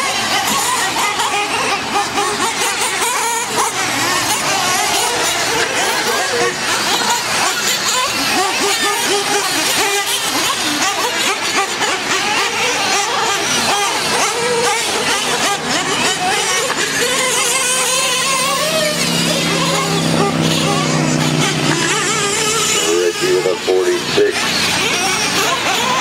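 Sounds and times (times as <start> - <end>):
engine holding steady note: 0.0 - 26.0
rc truck engines whining: 0.0 - 26.0.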